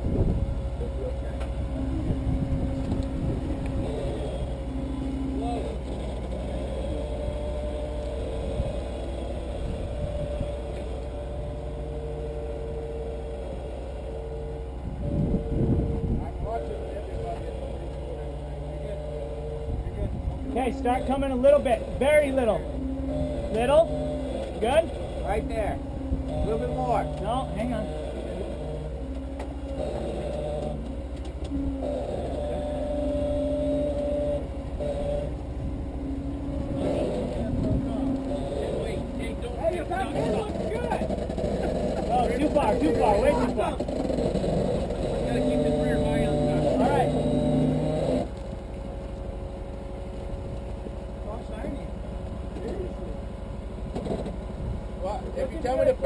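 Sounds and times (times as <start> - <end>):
off-road vehicle engine idling: 0.0 - 56.0.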